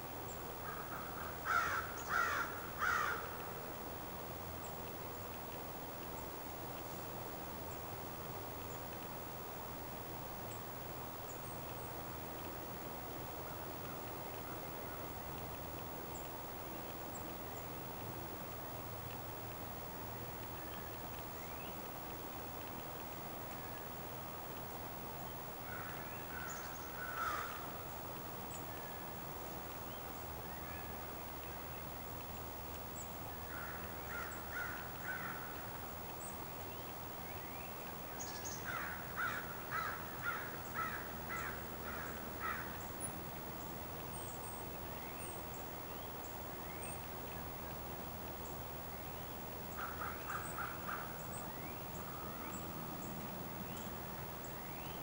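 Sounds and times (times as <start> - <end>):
low background rush: 0.0 - 55.0
small birds high chirps: 29.8 - 55.0.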